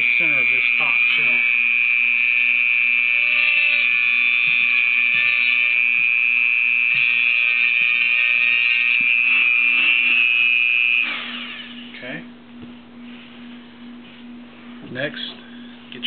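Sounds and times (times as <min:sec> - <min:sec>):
rotary tool drilling whine: 0:00.0 - 0:12.0.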